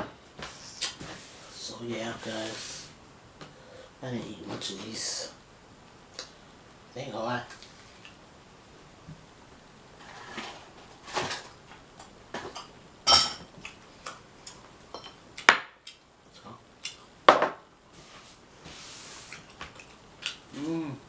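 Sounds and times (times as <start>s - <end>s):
soft hiss: 0.1s - 21.0s
dishes clinking: 12.0s - 13.5s, 14.9s - 15.2s.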